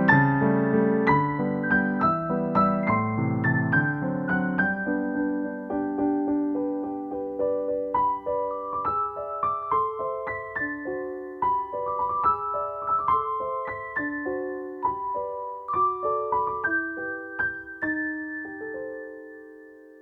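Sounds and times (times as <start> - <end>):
piano melody with bass line: 0.0 - 20.0.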